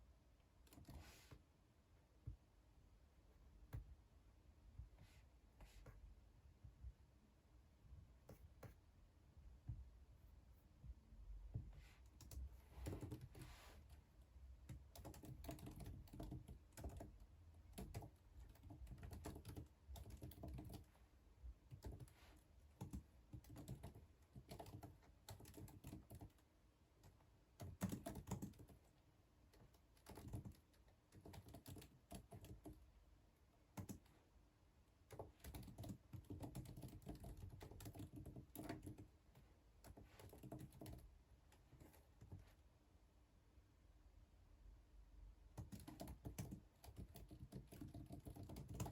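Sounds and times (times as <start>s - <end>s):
typing on computer keyboard: 12.2s - 13.4s, 14.6s - 20.9s, 21.7s - 22.2s, 22.8s - 28.9s, 29.5s - 32.8s, 33.8s - 34.2s, 35.1s - 41.1s, 45.6s - 48.9s.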